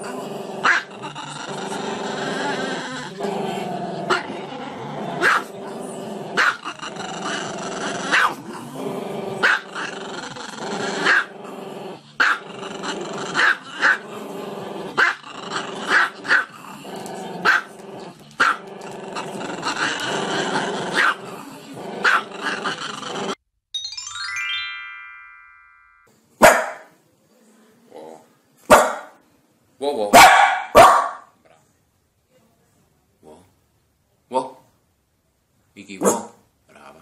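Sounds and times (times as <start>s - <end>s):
small dog growling: 0.0s - 23.4s
short sharp dog barks: 26.4s - 26.9s, 28.7s - 29.1s, 30.1s - 31.3s.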